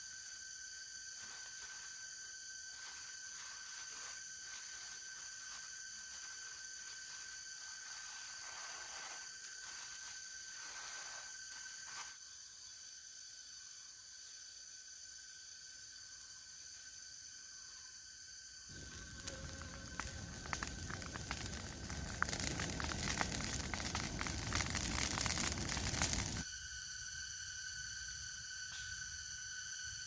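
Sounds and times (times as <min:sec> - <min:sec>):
insects chirring: 0:00.0 - 0:30.0
rustling noises: 0:18.7 - 0:26.4.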